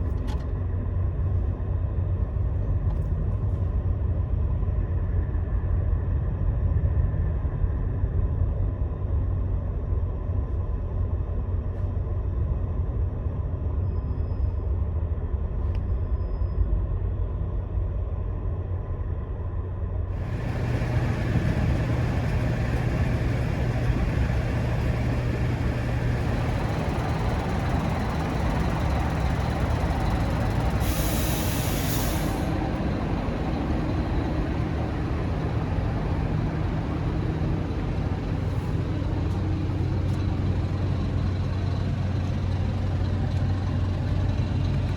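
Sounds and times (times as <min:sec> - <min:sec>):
bus engine drone: 0:00.0 - 0:44.9
road and tyre noise: 0:20.0 - 0:44.9
short hiss: 0:30.3 - 0:32.5.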